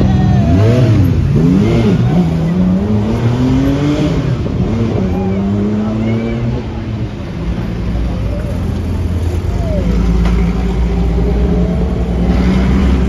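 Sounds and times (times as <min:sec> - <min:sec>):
car accelerating: 0:00.0 - 0:13.0.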